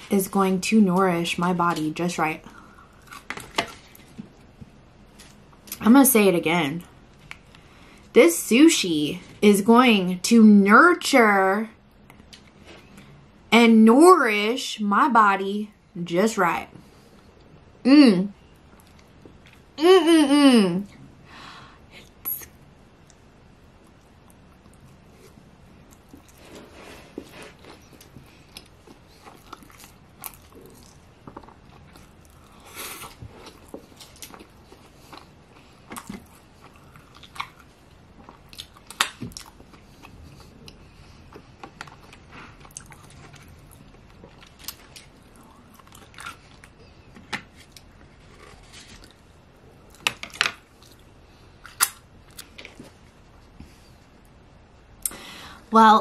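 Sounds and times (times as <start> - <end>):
chewing sushi: 23.8 - 53.0.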